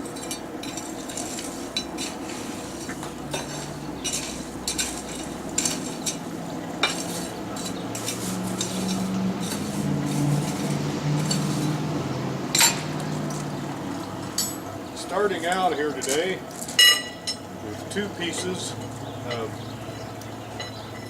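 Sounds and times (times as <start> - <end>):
metal tools clinking and scraping: 0.0 - 11.8, 12.5 - 13.5, 14.2 - 21.0
fire hissing: 0.0 - 16.8
low steady hum: 0.0 - 21.0.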